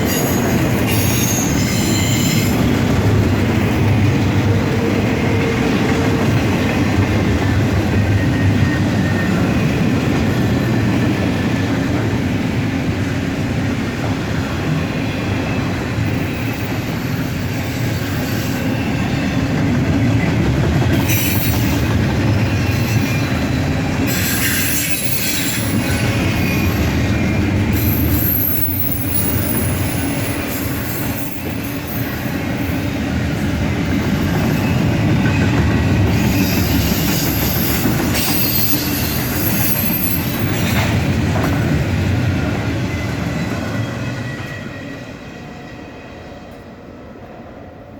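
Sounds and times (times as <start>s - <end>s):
high-pitched wheel squeal: 0.0s - 2.7s, 27.7s - 32.3s
freight train wheels rumbling: 0.0s - 47.9s.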